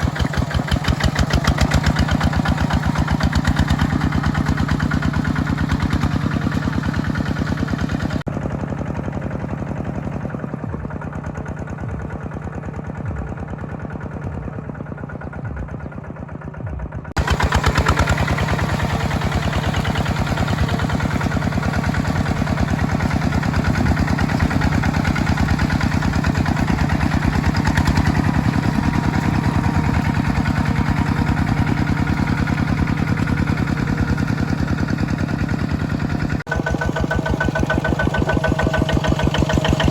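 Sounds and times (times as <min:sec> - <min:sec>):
tractor engine chugging: 0:00.0 - 0:39.9.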